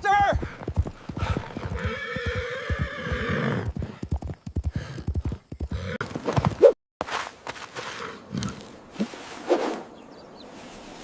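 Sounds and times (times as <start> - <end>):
horse hooves galloping: 0.0 - 6.7
horse whinnying: 1.2 - 3.8.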